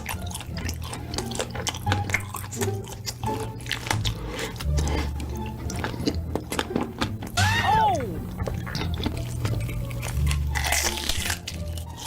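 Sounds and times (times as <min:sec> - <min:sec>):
wet chewing: 0:00.0 - 0:07.5, 0:08.1 - 0:12.0
background music with low bass: 0:00.0 - 0:12.0.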